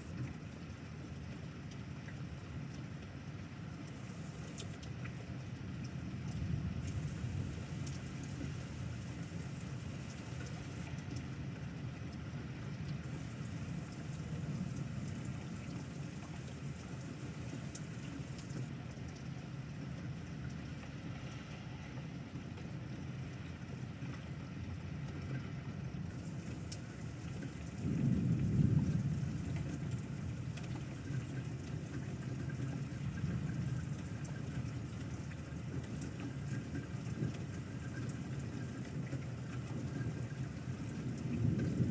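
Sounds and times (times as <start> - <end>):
steady rain: 0.0 - 41.9
thunder rumble: 27.2 - 33.9, 39.8 - 41.9.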